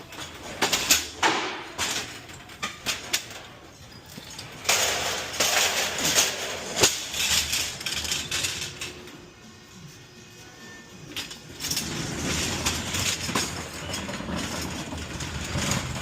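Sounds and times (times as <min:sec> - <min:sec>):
containers scraping and rattling: 0:11.6 - 0:16.0.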